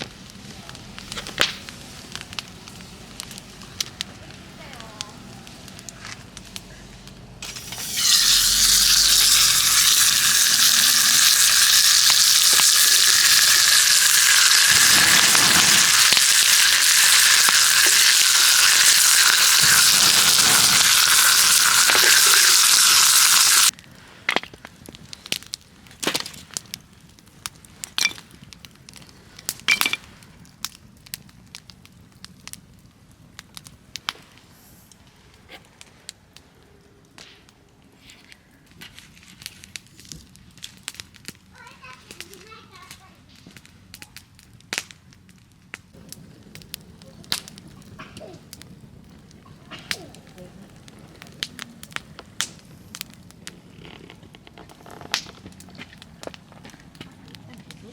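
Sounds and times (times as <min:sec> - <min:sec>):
pops and crackles: 0:00.0 - 0:57.9
food sizzling in a pan: 0:07.4 - 0:23.8.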